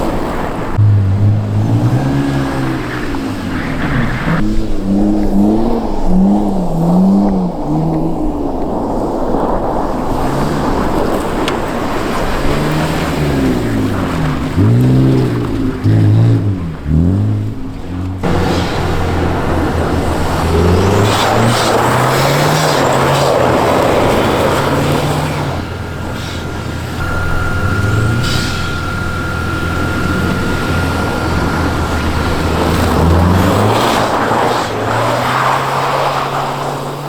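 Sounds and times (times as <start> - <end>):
car engine revving: 0.0 - 37.0
high turbo whistle: 18.2 - 35.1.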